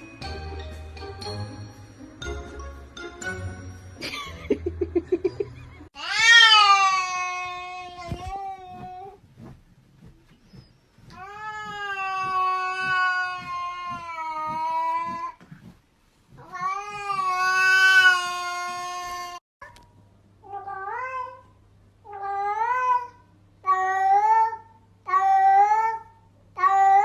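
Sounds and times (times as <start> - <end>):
cat yowling: 6.0 - 8.0
cat meowing: 6.0 - 8.9.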